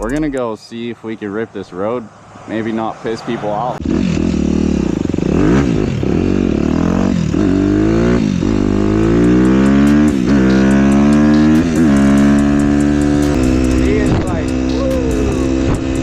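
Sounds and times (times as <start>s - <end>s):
dirt bike accelerating through gears: 3.8s - 14.7s.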